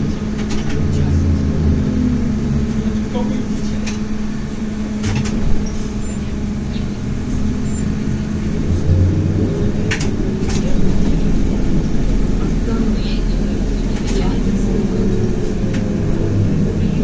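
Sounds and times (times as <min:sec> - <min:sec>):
low hum: 0:00.0 - 0:17.0
trolleybus rumbling: 0:00.0 - 0:17.0
sharp rattling knocks: 0:03.7 - 0:06.0, 0:08.2 - 0:16.4.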